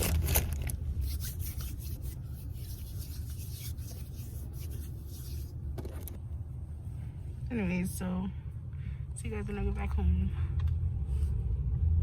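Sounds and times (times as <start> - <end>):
steady low rumble: 0.0 - 12.0
rubbing against microphone: 0.9 - 6.1.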